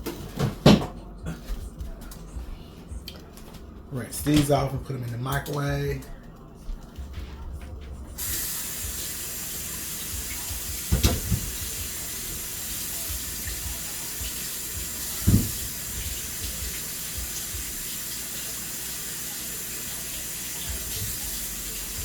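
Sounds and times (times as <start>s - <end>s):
faucet running into sink: 8.2s - 22.0s.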